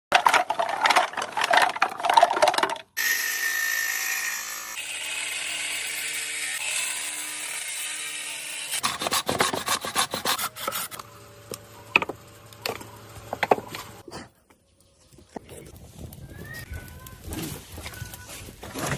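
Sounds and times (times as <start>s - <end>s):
power tool running: 3.0s - 14.0s.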